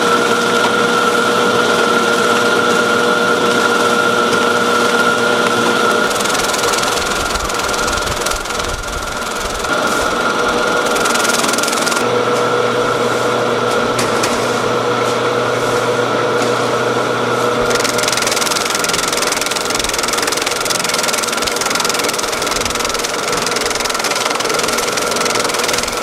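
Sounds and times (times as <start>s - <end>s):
machinery whine and hum: 0.0s - 26.0s.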